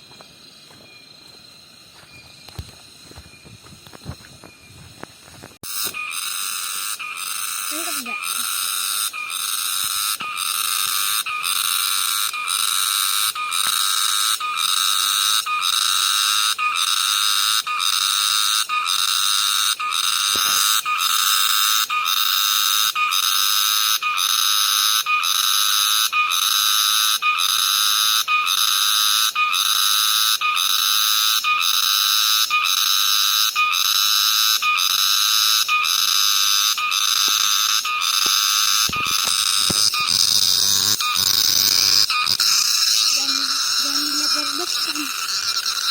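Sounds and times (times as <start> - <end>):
cicada buzzing: 0.0 - 45.9.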